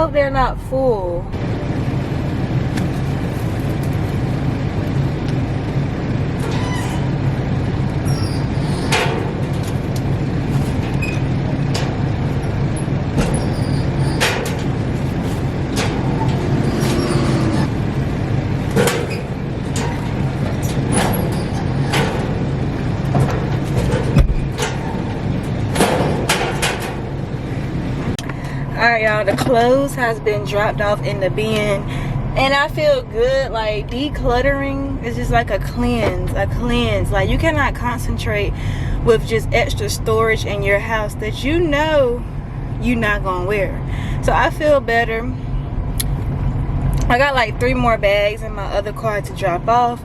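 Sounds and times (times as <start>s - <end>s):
vehicle engine idling: 1.2s - 50.0s
metal door knocking and clanking: 18.8s - 27.2s.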